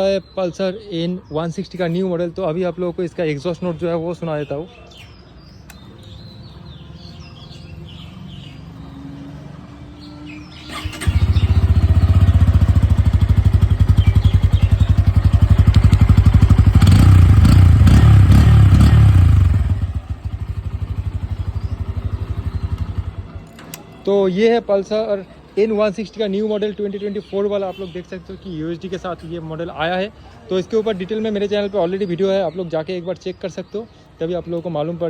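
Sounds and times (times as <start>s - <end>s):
motorcycle engine revving: 7.6s - 23.4s.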